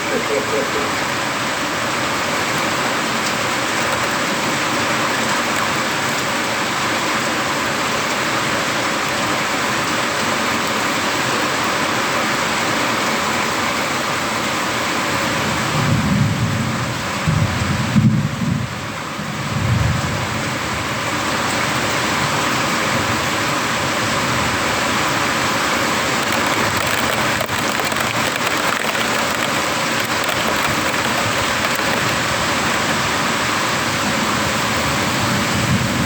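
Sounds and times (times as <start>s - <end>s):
heavy rain pouring: 25.8s - 35.5s.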